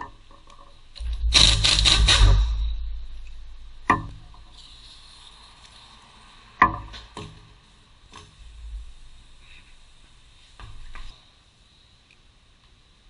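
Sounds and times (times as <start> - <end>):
sharp knocks: 3.8 - 4.5.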